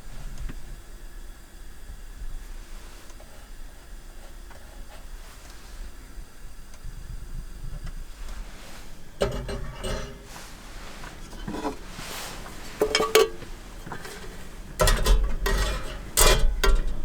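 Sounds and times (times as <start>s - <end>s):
objects handled and rubbed: 8.1s - 17.0s
clattering clicks and ringing: 9.2s - 10.4s, 11.3s - 17.0s.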